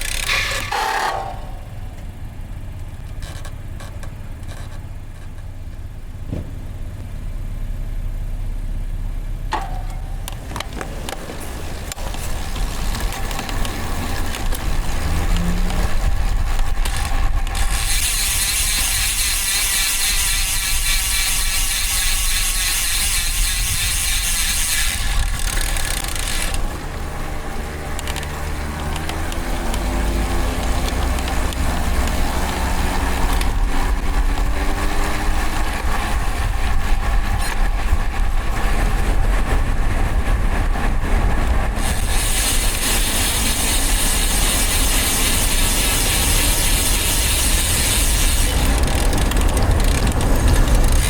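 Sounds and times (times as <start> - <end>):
bike clicks: 0.0 - 2.1, 9.5 - 27.0, 27.6 - 34.6, 41.8 - 51.0
road rumble: 0.0 - 51.0
wind noise: 10.0 - 27.8, 29.2 - 51.0.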